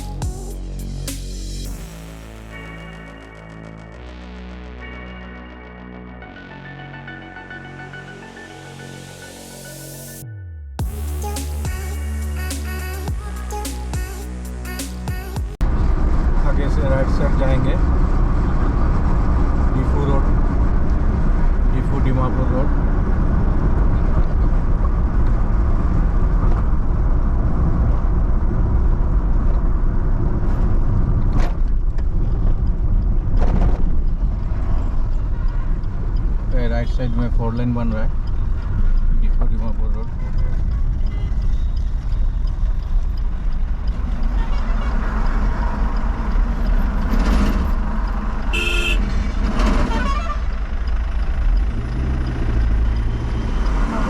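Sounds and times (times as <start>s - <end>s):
engine and road noise: 0.0s - 54.0s
short vehicle horn toot: 48.5s - 49.0s.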